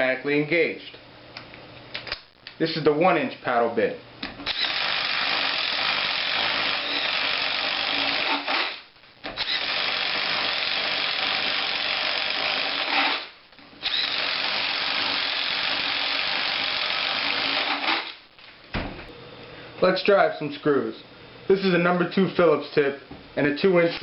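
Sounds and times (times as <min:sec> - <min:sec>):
impact driver boring into wood: 0:04.4 - 0:18.2.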